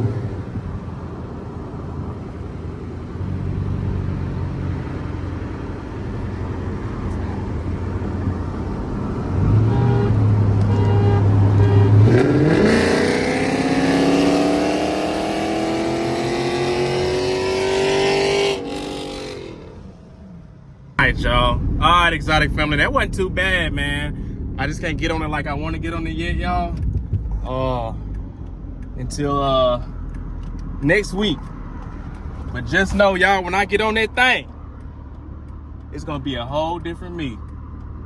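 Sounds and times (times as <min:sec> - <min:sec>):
car engine accelerating: 0:00.0 - 0:38.0.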